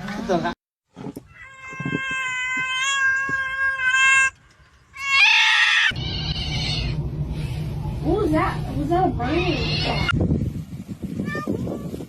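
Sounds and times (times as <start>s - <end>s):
cat meowing: 1.3s - 4.4s, 5.0s - 7.0s, 9.2s - 10.2s
low background rumble: 5.8s - 12.0s.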